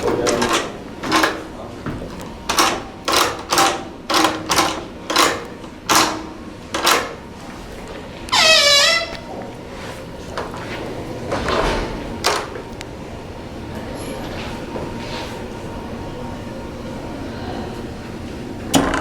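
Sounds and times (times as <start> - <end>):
creaky door: 2.5 - 7.2, 8.3 - 9.4.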